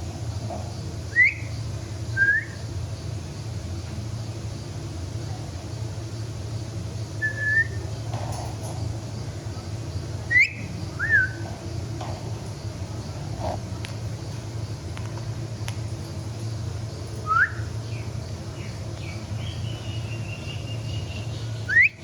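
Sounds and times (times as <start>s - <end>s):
steady low hum: 0.0s - 22.0s
short clear whistles: 7.2s - 7.8s, 17.2s - 17.7s.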